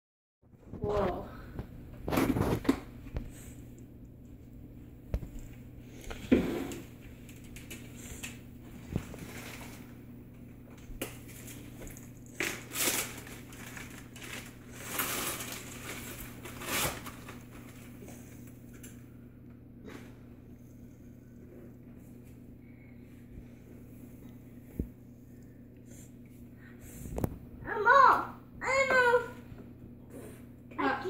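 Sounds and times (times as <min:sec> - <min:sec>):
steady low hum: 0:00.5 - 0:31.0
scraping and crunching on counter: 0:02.0 - 0:02.9.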